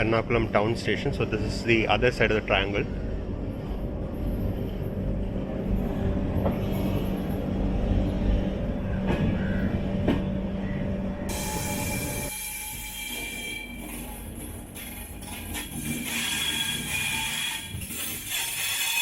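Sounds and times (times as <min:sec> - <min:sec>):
train rumbling on rails: 0:00.0 - 0:19.0
high-pitched wheel squeal: 0:16.0 - 0:19.0.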